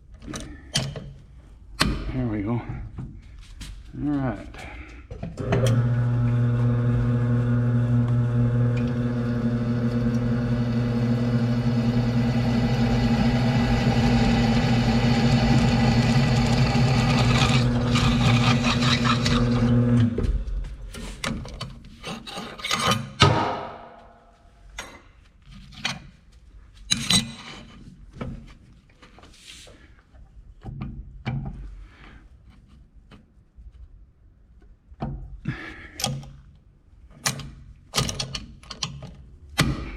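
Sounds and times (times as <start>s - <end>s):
drill press humming: 5.4s - 20.4s
steel parts clicking and scraping: 21.2s - 23.2s.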